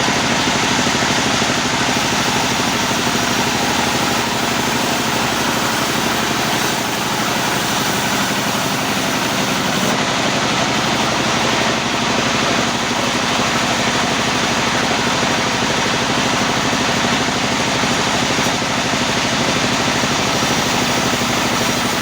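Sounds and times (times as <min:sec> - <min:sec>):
sawmill machinery running: 0:00.0 - 0:22.0.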